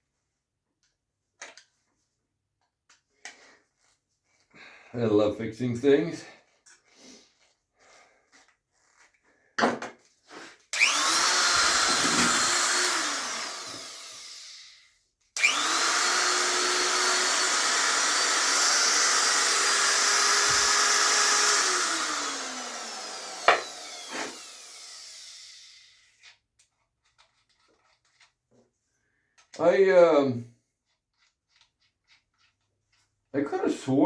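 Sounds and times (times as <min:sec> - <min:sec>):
die grinder motor whine: 0:10.8 - 0:14.8, 0:15.4 - 0:26.0.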